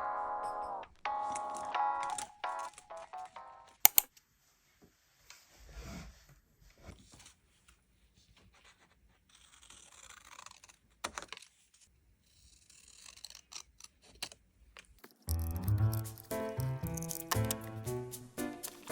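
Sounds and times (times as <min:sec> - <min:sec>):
sharp click: 0:03.9 - 0:04.1, 0:15.3 - 0:17.8
small clicks: 0:03.9 - 0:04.1, 0:14.2 - 0:17.7
paper rustling: 0:15.0 - 0:18.9.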